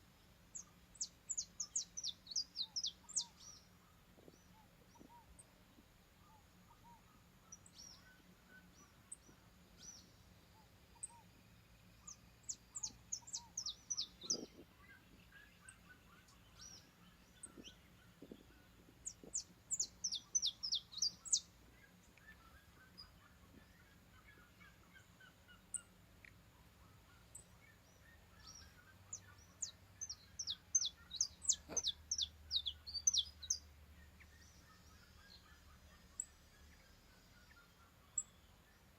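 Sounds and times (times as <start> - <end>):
birds chirping faintly: 0.0 - 38.9
finch singing: 0.5 - 5.5, 12.0 - 26.0, 27.1 - 38.4.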